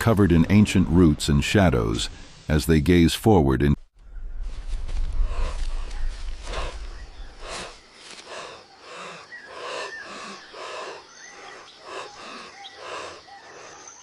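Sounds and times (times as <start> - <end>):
low rumble: 4.0 - 7.7
person breathing heavily: 5.1 - 14.0.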